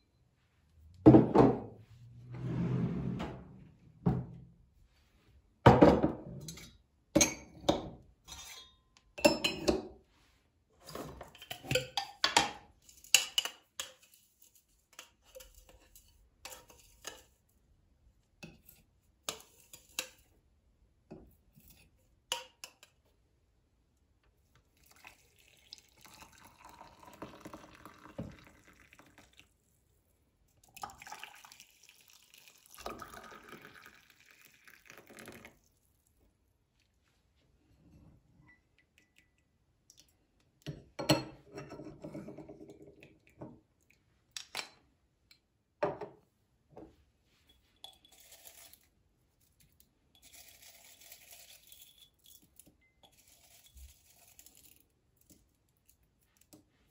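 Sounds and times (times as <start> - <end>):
dishes and utensils clattering: 5.9 - 10.0, 10.8 - 17.4, 40.7 - 43.0.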